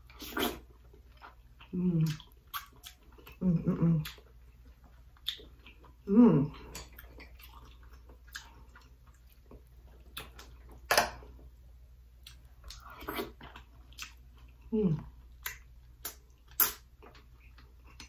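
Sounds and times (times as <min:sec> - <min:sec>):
wet chewing and lip smacks: 0:00.1 - 0:03.4, 0:04.0 - 0:10.9, 0:12.2 - 0:18.0
person humming mmm: 0:01.7 - 0:02.2, 0:06.1 - 0:06.8.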